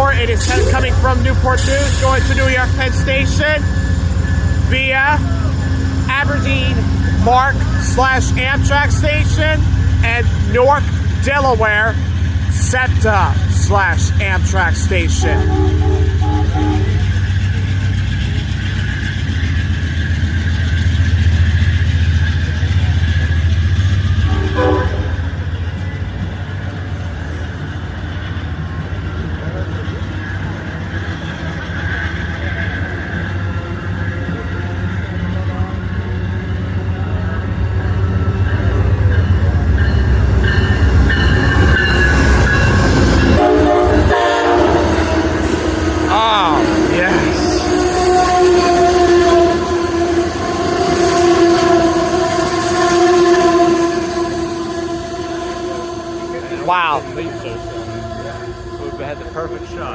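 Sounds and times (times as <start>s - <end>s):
train rumbling past: 0.0s - 59.9s
train horn: 15.2s - 17.1s, 24.2s - 25.3s, 43.2s - 59.9s.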